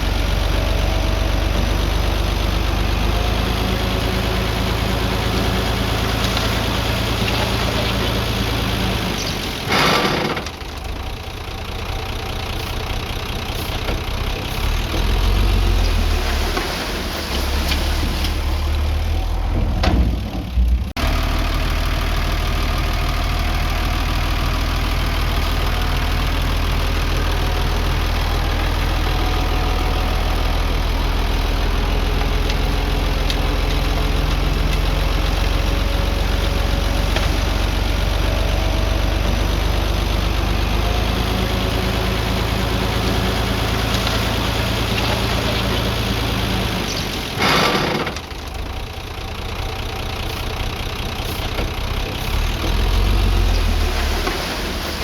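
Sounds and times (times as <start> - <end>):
heavy diesel engine running: 0.0 - 15.9, 18.0 - 55.0.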